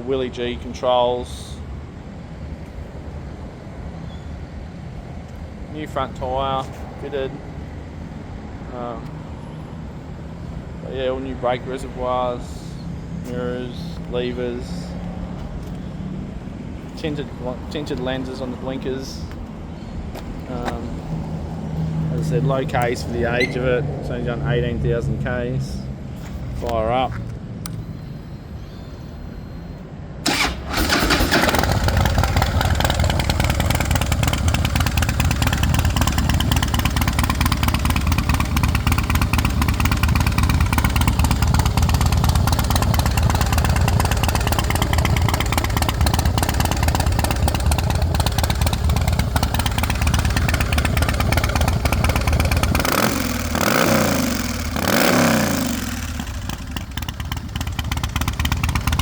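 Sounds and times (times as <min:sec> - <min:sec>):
motorcycle engine starting and idling: 0:22.2 - 0:24.0, 0:26.6 - 0:59.0
motorcycle throttle blips: 0:22.6 - 0:23.8, 0:26.6 - 0:59.0.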